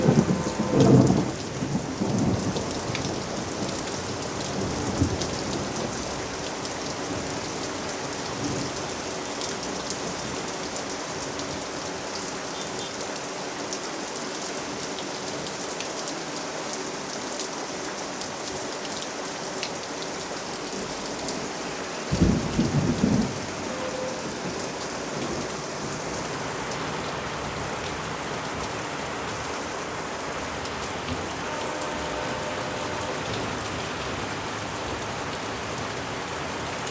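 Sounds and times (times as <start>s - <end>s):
low thunder burst: 0.0s - 2.6s
heavy rain: 0.0s - 36.9s.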